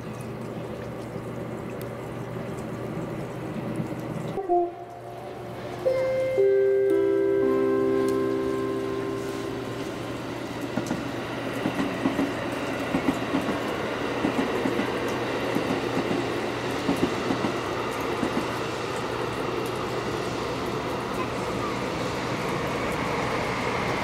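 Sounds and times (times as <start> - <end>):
train rumble: 7.0 - 24.0
train wheels clacking over rail joints: 10.8 - 18.6.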